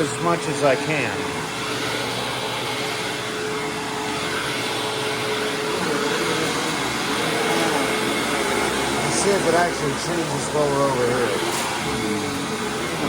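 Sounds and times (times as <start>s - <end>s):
vacuum cleaner running over carpet: 0.0s - 13.0s.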